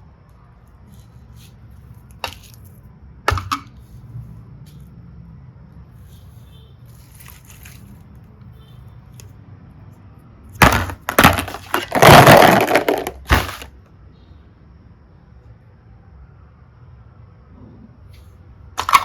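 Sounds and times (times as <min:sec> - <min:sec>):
brittle cracking and crunching: 0:10.6 - 0:13.7.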